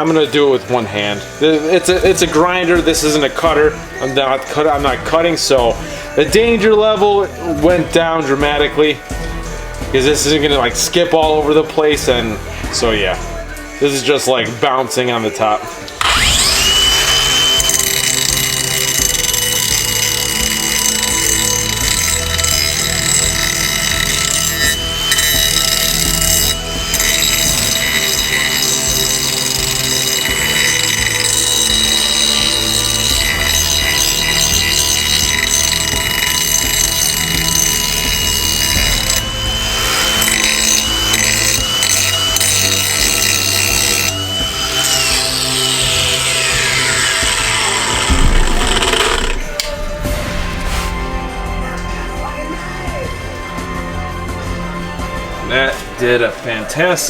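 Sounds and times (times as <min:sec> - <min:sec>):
angle grinder whining: 0:15.9 - 0:50.1
grinding wheel on metal: 0:16.0 - 0:50.1.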